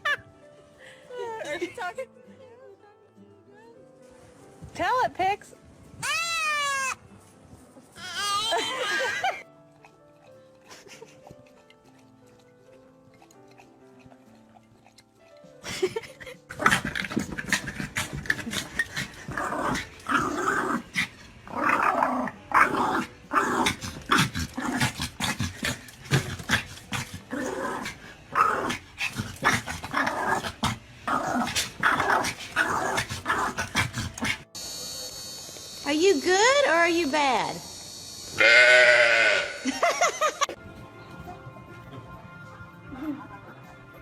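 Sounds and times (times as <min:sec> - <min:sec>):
dog growling and barking: 0:08.5 - 0:34.6.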